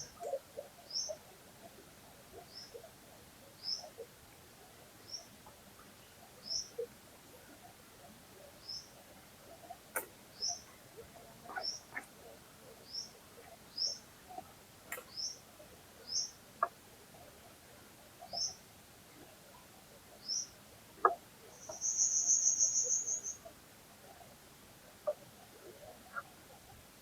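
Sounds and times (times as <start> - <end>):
songbird chirping: 0.0 - 4.2, 8.4 - 9.0, 9.6 - 16.8, 18.2 - 18.6, 19.5 - 23.5
faint flowing stream: 0.0 - 27.0
bird trill: 21.5 - 23.4.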